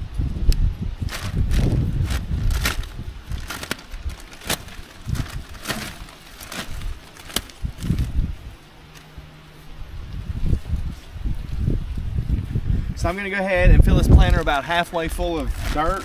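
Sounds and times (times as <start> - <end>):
plastic bag crinkling and rustling: 1.0 - 8.3, 13.9 - 16.0.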